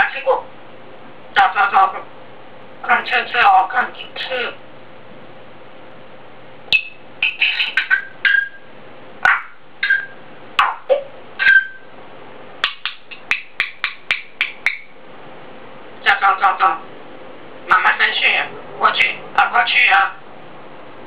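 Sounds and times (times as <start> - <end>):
parrot clicking squawks: 6.7 - 8.6, 9.2 - 11.8, 12.6 - 15.0
parrot whistles: 6.7 - 8.7, 9.3 - 10.2, 11.4 - 11.9.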